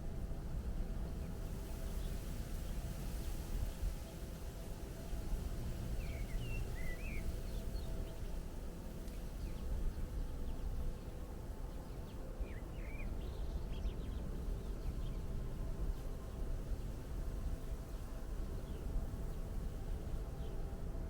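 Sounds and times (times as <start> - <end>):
small birds twittering: 6.0 - 8.2, 11.8 - 15.2.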